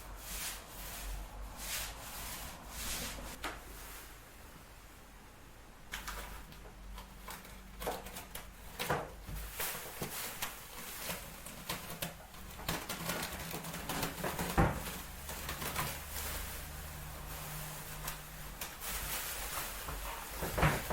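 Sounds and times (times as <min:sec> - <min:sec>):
rubbing and scraping on a surface: 0:00.0 - 0:04.1, 0:06.2 - 0:20.9.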